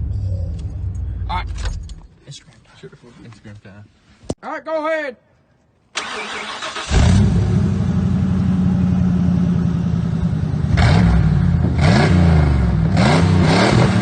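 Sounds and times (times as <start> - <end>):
loud truck engine idling and revving: 6.7 - 14.0.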